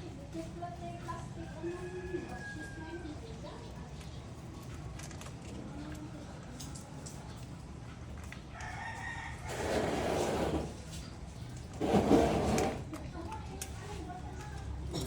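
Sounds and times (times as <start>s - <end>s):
rooster crowing: 8.5s - 9.8s.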